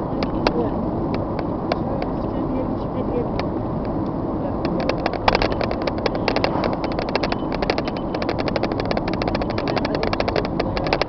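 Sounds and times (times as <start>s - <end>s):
vehicle engine running: 0.0s - 11.0s
rapid clicking: 3.4s - 11.0s.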